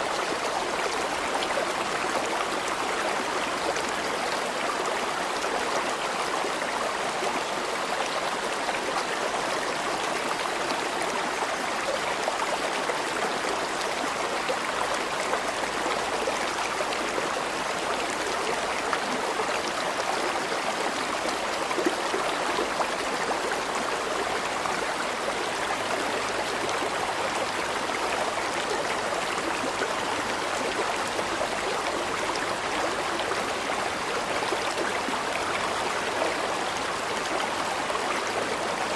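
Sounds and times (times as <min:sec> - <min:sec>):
river water babbling: 0:00.0 - 0:38.9.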